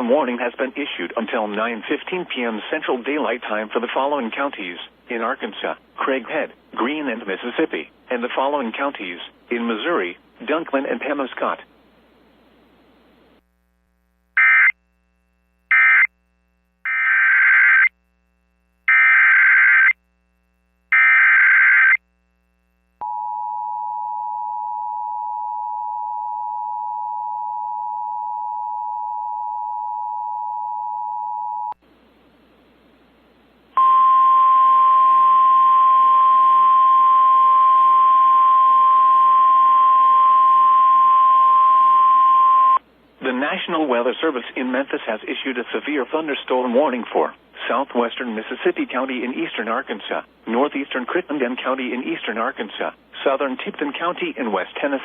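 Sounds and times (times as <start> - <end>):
loud steady alarm tone: 14.4 - 14.8, 15.7 - 16.1, 16.9 - 17.9, 18.9 - 20.0, 20.9 - 22.0.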